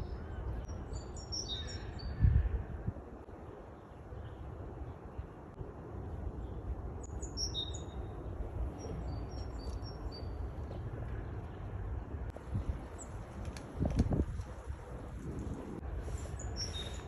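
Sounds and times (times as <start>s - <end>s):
songbirds chirping: 0.0s - 17.0s
steady low rumble: 2.1s - 17.0s.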